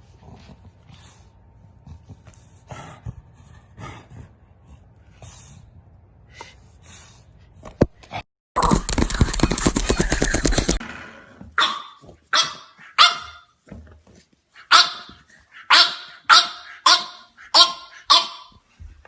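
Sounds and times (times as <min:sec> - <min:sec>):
puppy barking: 0:11.6 - 0:13.5, 0:14.6 - 0:18.6.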